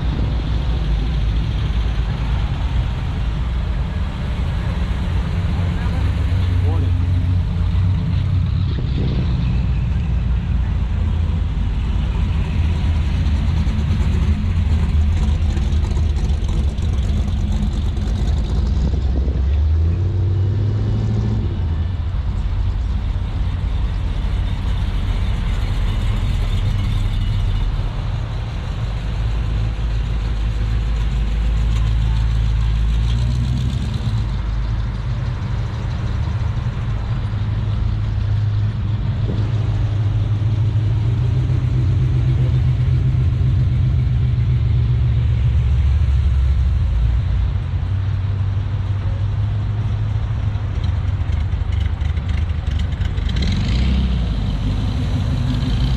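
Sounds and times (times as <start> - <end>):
car engine rumbling: 0.0 - 55.9.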